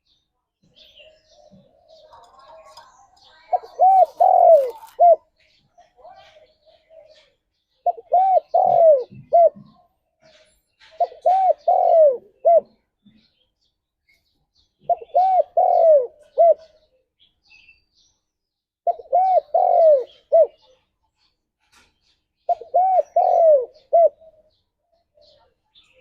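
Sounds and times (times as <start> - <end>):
dove cooing: 1.3 - 5.3, 6.2 - 9.9, 10.9 - 12.8, 14.8 - 16.9, 18.8 - 20.7, 22.5 - 24.6.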